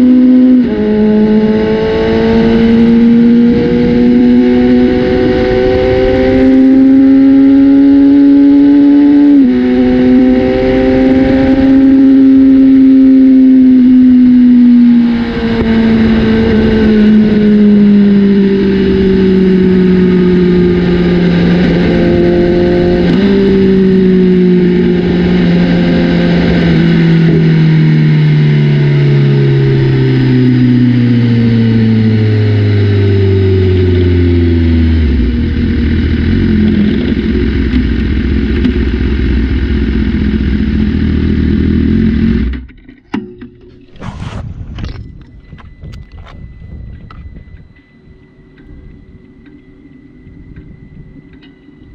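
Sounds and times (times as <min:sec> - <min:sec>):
motorcycle engine revving: 0:00.0 - 0:47.8.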